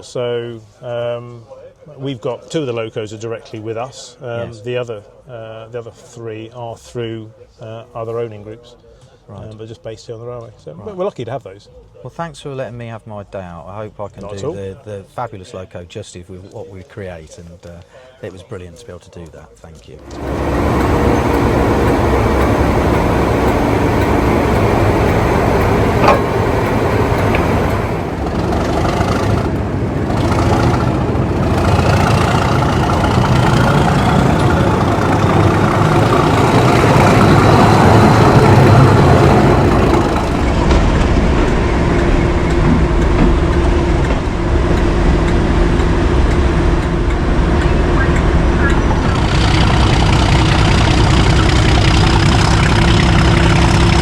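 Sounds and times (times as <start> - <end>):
diesel locomotive engine running: 20.0 - 54.0.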